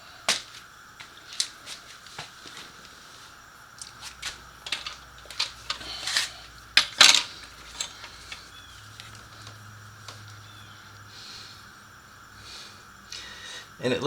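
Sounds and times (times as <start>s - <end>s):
metal tools clinking and clattering: 3.9s - 9.6s.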